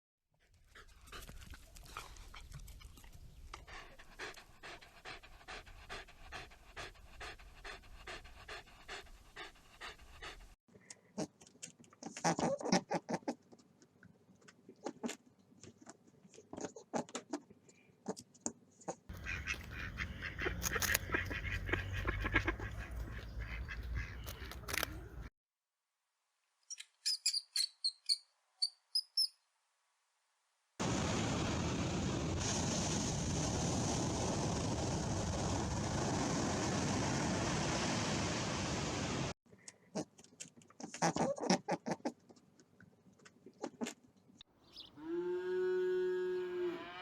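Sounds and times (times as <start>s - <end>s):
dog panting: 0.5s - 10.6s.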